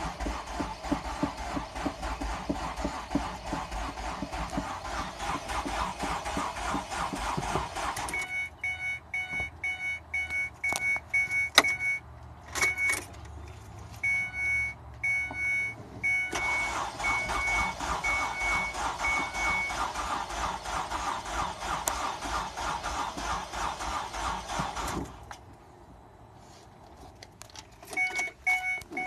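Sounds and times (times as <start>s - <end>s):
car engine cranking: 0.0s - 25.5s, 27.4s - 29.0s
high electronic beep: 8.1s - 12.0s, 14.0s - 19.8s, 28.0s - 29.0s.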